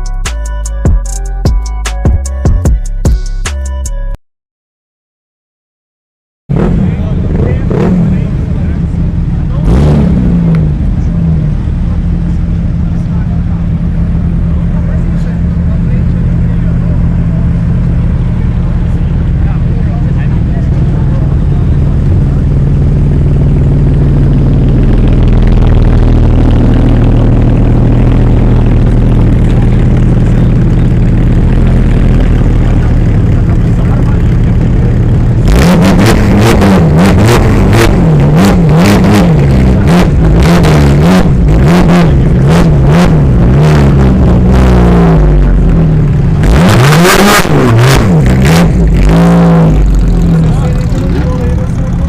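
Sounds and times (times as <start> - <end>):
car engine idling and revving: 6.5 - 52.0
exhaust cracks: 6.5 - 52.0.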